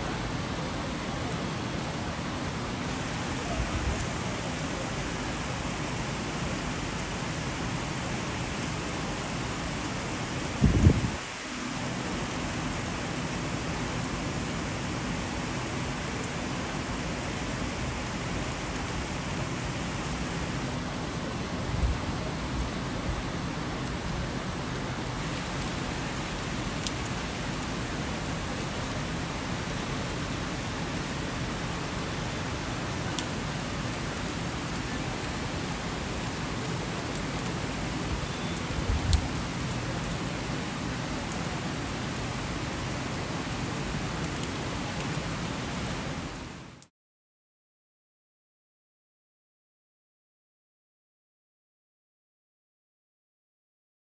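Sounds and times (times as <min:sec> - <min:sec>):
heavy rain hissing: 0:00.0 - 0:46.8.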